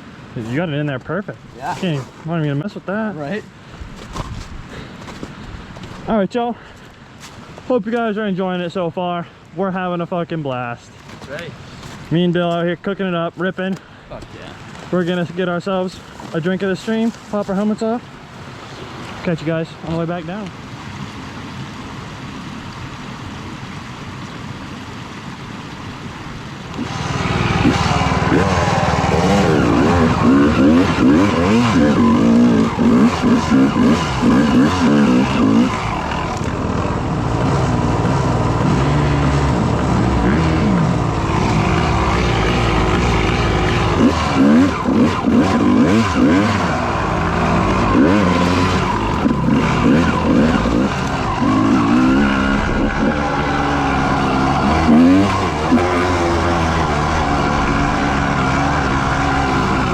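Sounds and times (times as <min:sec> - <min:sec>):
dirt bike engine revving: 0:26.8 - 0:59.9.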